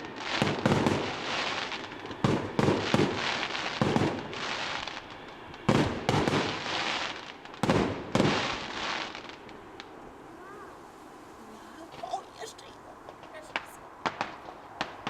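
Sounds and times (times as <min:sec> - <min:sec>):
fireworks crackling and hissing: 0:00.0 - 0:15.0
firework shells bursting: 0:11.9 - 0:15.0.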